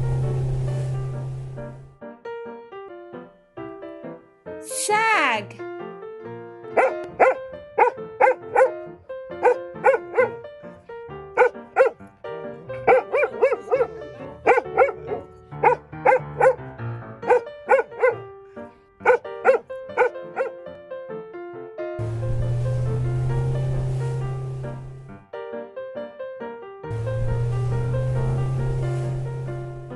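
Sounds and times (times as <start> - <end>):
background music: 0.0 - 29.9
dog barking: 6.8 - 8.8, 9.4 - 10.4, 11.4 - 12.0, 12.8 - 16.6, 17.3 - 18.2, 19.0 - 20.6.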